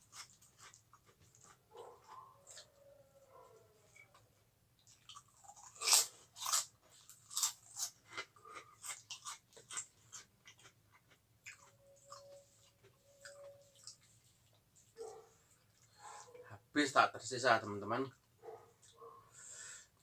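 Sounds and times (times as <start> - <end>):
crunching crackers: 0.0 - 2.8, 4.8 - 14.0.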